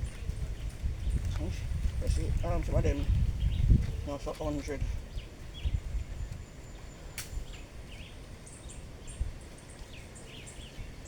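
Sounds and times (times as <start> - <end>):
small birds chirping: 0.0 - 11.0
sharp click: 7.2 - 7.4.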